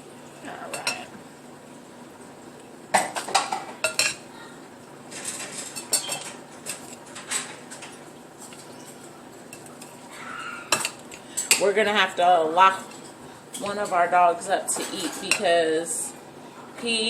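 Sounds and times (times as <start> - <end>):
spoon clinking against a dish: 5.8 - 6.9.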